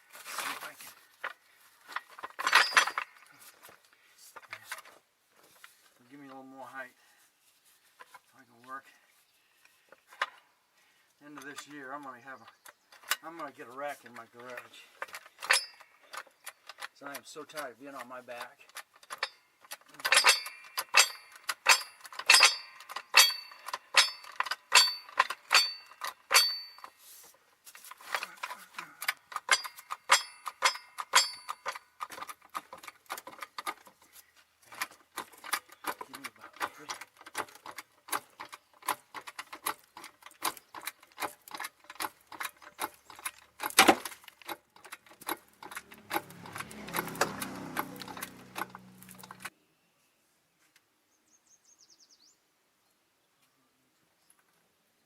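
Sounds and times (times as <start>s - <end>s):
car jack clanking: 2.1s - 3.2s, 18.8s - 26.9s, 29.0s - 33.8s, 34.8s - 49.5s
metallic clicking of tools: 14.1s - 26.9s, 28.1s - 33.9s, 34.8s - 49.5s.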